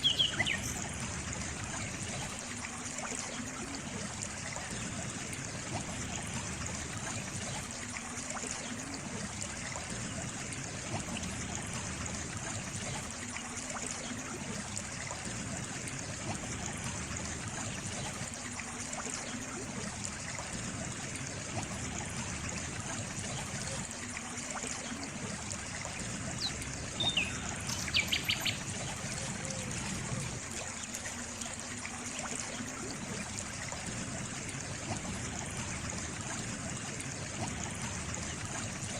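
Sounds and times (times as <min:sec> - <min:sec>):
bird chirping and trilling: 0:00.0 - 0:00.8, 0:26.4 - 0:28.8
stream trickling: 0:00.0 - 0:38.9.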